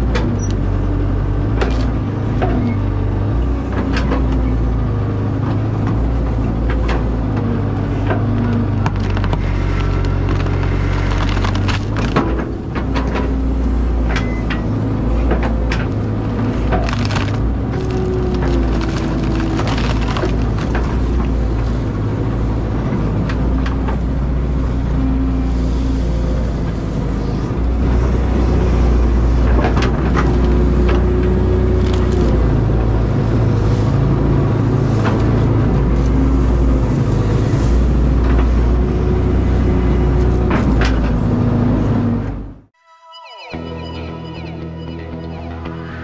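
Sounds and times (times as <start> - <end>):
excavator diesel engine: 0.0 - 42.8
digging cracks and knocks: 6.6 - 14.6, 15.2 - 21.4.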